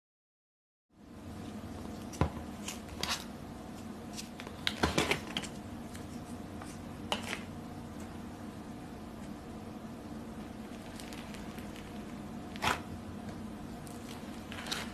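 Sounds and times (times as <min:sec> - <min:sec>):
slime crackling and squishing: 0:10.5 - 0:12.9, 0:13.8 - 0:14.9.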